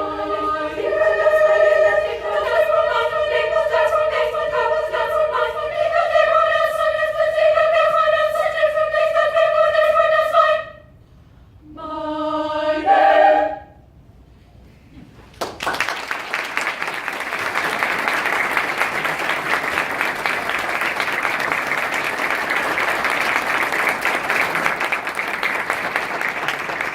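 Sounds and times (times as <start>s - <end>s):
choir singing: 0.0s - 10.9s, 11.6s - 13.8s
audience applause: 15.4s - 26.9s.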